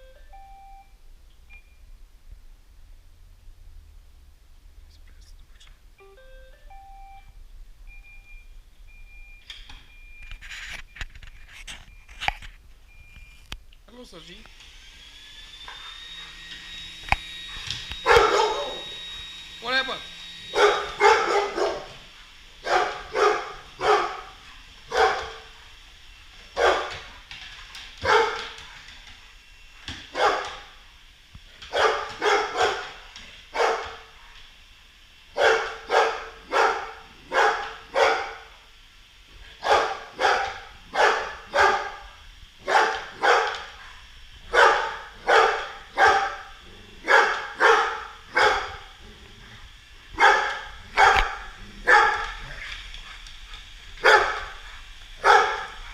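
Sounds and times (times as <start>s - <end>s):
dog barking: 18.0s - 18.9s, 20.5s - 22.0s, 22.6s - 25.5s, 26.6s - 27.0s, 28.0s - 28.5s, 30.1s - 30.6s, 31.7s - 34.1s, 35.4s - 38.5s, 39.6s - 43.7s, 44.5s - 48.9s, 50.2s - 52.6s, 54.0s - 54.5s, 55.2s - 55.8s.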